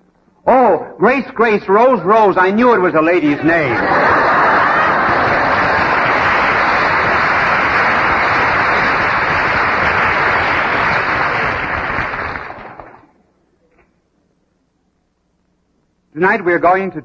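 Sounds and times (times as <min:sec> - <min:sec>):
audience applauding: 0:03.3 - 0:13.1.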